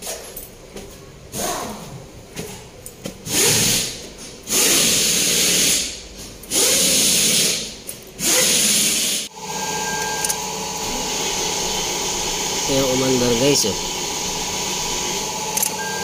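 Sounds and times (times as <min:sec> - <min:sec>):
car engine idling: 0:09.3 - 0:15.6.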